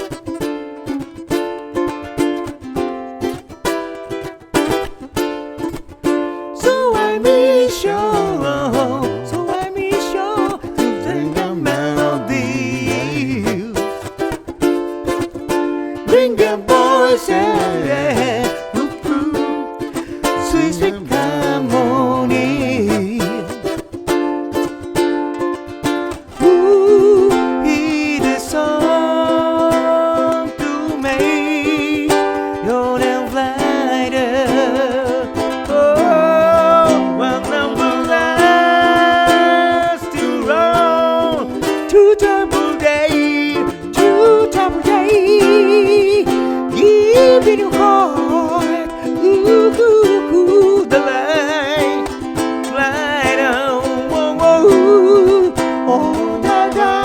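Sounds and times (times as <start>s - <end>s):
ukulele strumming: 0.0s - 57.0s
person singing with vibrato: 6.2s - 24.4s, 25.5s - 57.0s.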